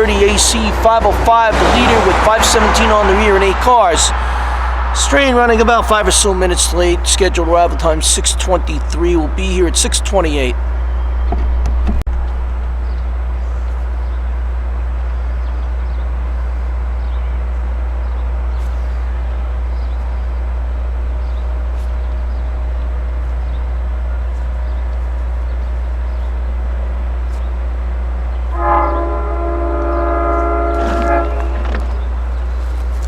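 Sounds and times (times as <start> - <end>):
locomotive chord horn: 0.0 - 11.0, 27.8 - 32.4
steady low hum: 0.0 - 33.0.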